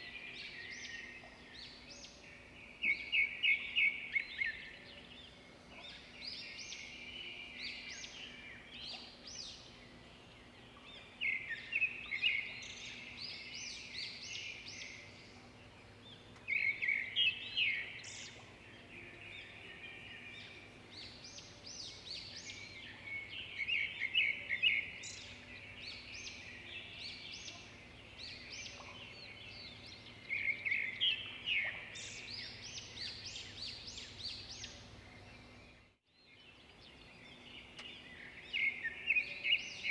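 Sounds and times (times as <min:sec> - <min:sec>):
birds singing high trills: 0:00.0 - 0:39.9.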